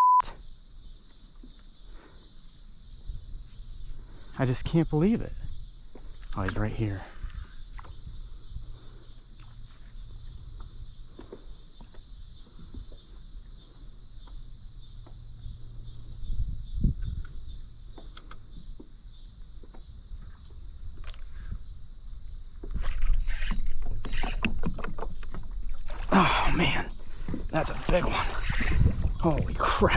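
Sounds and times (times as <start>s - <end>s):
insect chorus pulsing: 0.3s - 29.9s.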